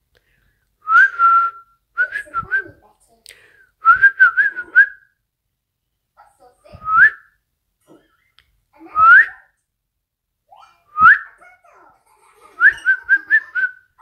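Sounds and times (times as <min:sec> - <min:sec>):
person whistling: 0:00.8 - 0:02.7, 0:03.8 - 0:05.1, 0:06.8 - 0:07.3, 0:09.0 - 0:09.3, 0:11.0 - 0:11.3, 0:12.6 - 0:13.9.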